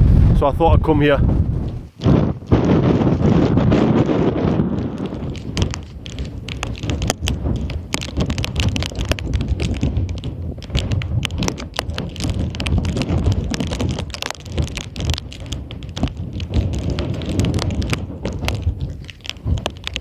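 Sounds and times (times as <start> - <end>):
wind buffeting microphone: 0.0 - 20.0
crackle of sharp clicks: 4.7 - 20.0.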